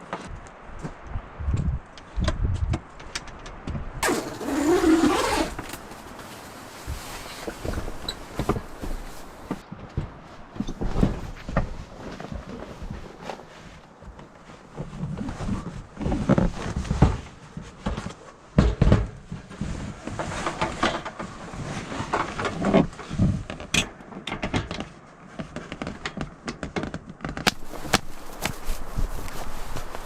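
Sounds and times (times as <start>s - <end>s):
rustling: 4.0s - 18.6s, 24.8s - 30.0s.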